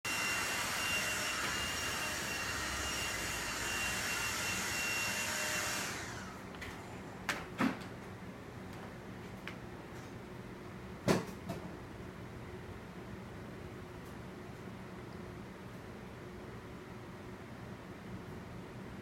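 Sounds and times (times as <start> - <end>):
vacuum cleaner whining: 0.0 - 6.9.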